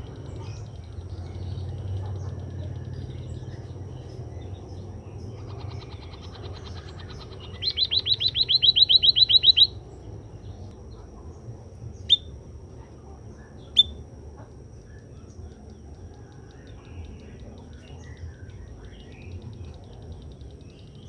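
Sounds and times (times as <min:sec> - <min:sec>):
sharp bird calls: 0:00.0 - 0:10.6
munia trilling: 0:00.0 - 0:21.0.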